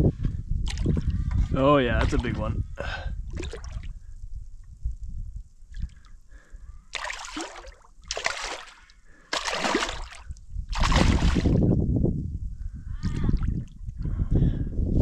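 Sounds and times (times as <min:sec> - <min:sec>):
water splashing: 0:03.3 - 0:04.0, 0:06.9 - 0:11.6.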